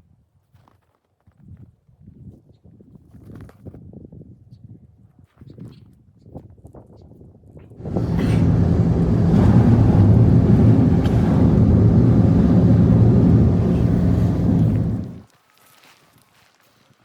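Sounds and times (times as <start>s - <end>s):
engine running: 7.8s - 15.2s.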